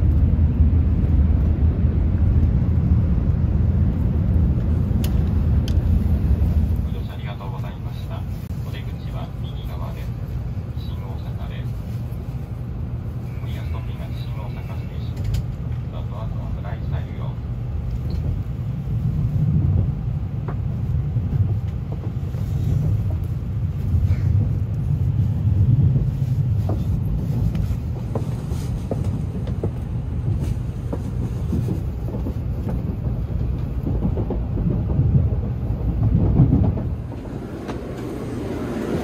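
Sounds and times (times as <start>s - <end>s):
train running rumble: 0.0s - 39.0s.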